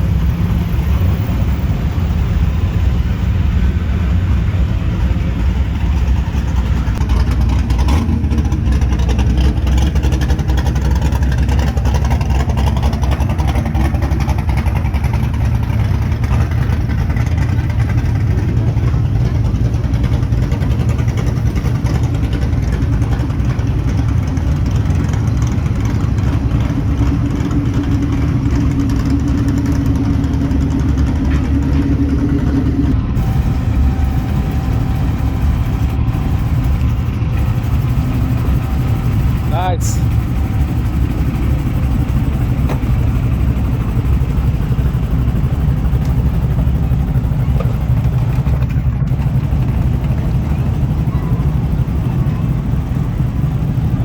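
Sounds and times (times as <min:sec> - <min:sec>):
car engine idling: 0:00.0 - 0:54.0
higher steady note: 0:33.0 - 0:41.0.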